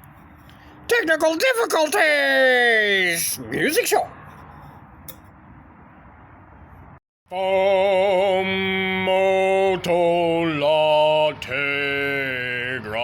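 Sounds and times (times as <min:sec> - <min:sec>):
man singing long held notes: 0:07.3 - 0:13.0.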